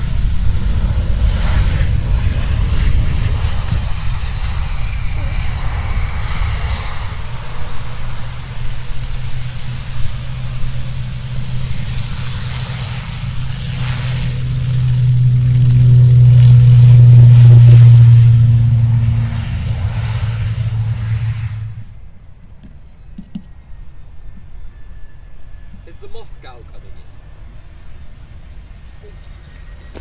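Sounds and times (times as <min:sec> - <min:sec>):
aircraft engine drone: 0:00.0 - 0:30.0.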